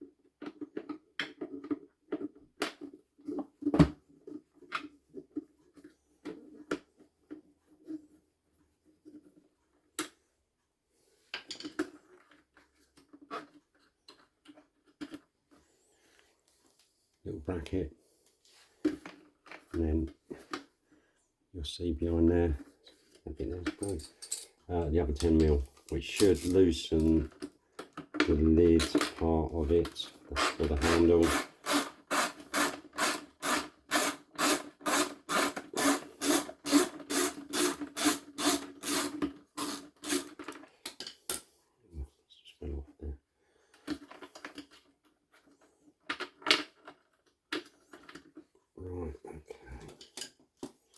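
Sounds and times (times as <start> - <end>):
hard plastic parts rattling: 23.0 - 41.4
ratchet spanner rasping: 30.4 - 40.3.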